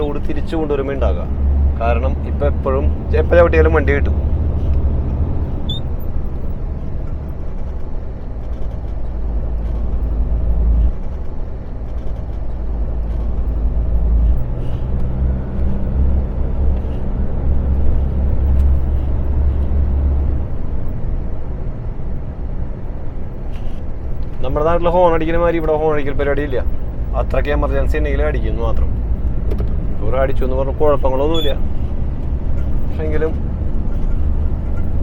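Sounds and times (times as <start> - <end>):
truck diesel engine drone: 0.0 - 35.0.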